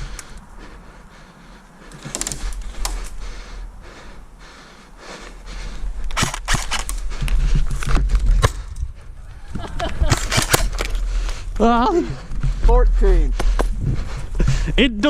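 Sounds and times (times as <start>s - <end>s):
rustling movement: 0.0s - 14.8s
sharp clicks: 1.9s - 3.3s, 6.0s - 8.9s, 9.9s - 11.4s.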